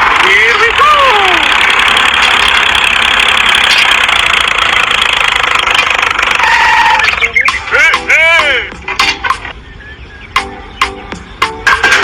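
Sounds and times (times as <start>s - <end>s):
mini tractor running: 0.0s - 8.4s.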